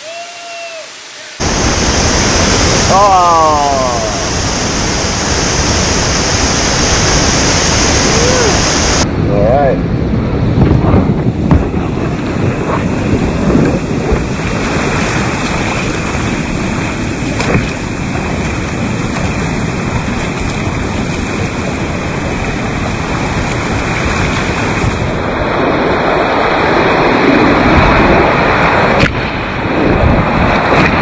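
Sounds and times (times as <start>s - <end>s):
whitewater rushing: 0.0s - 9.1s, 12.1s - 31.0s
wind on microphone: 1.4s - 31.0s.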